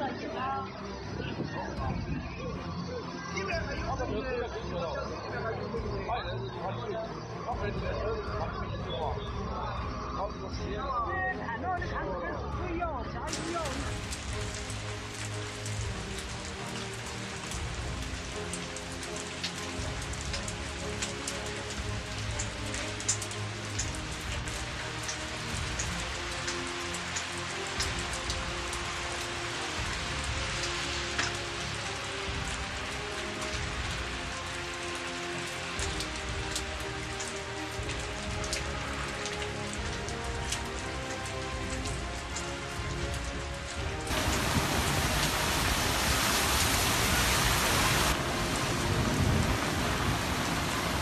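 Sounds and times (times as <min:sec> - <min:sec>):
heavy rain falling: 0:13.3 - 0:51.0.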